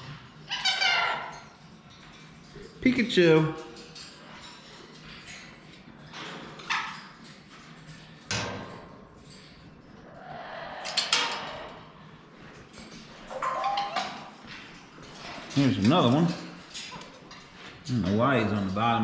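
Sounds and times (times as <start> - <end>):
parrots squawking: 0.1 - 1.6, 13.3 - 14.3.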